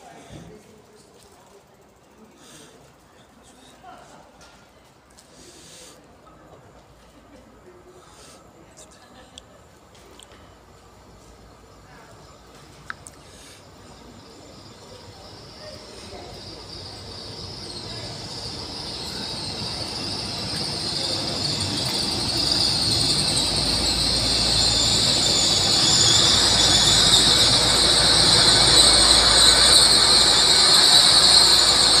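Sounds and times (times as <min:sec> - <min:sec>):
train arriving and braking: 0:00.0 - 0:32.0
low train hum: 0:01.6 - 0:32.0
high brake squeal: 0:13.3 - 0:32.0.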